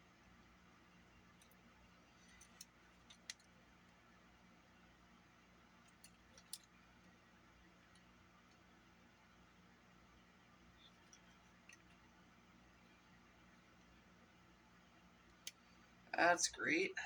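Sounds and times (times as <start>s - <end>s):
small parts and tools clicking: 1.3s - 3.6s, 5.8s - 6.8s.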